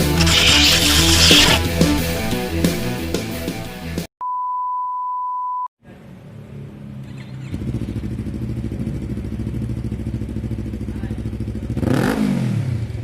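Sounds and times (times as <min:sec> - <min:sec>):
music: 0:00.0 - 0:04.1
high beep: 0:04.2 - 0:05.7
motorcycle engine running: 0:07.4 - 0:13.0.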